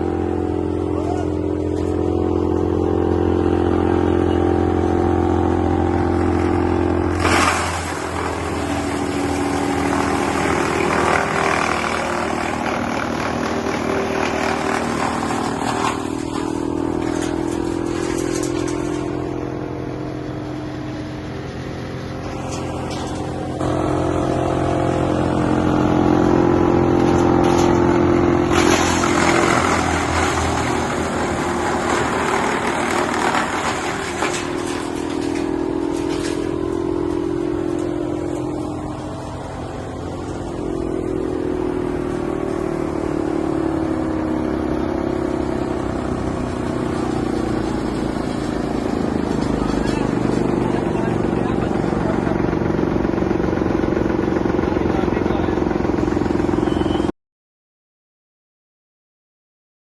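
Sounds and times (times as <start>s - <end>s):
wood chipper running: 0.0s - 57.1s
rough chipping noise: 4.8s - 19.6s, 21.8s - 56.6s.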